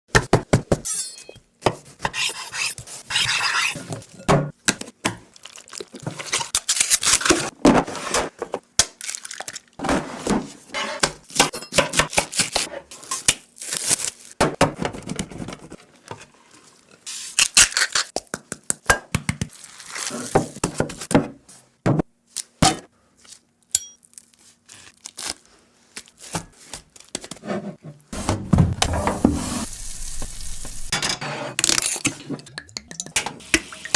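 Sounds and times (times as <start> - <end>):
utensils clinking against dishes: 0.8 - 1.4, 11.4 - 12.1
tearing and crinkling: 6.6 - 7.5, 12.3 - 14.4, 19.5 - 20.4, 24.0 - 27.1.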